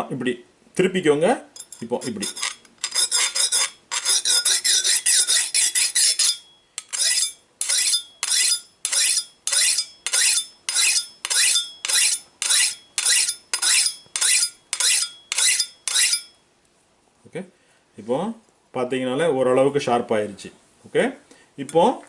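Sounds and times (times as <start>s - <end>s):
steel file rasping on knife: 2.0s - 16.3s.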